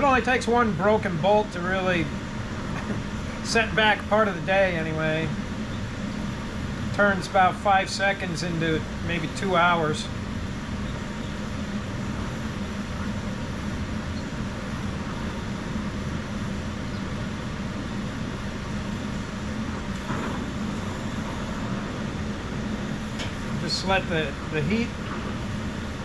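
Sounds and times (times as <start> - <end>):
gas torch flame hissing: 0.0 - 26.0.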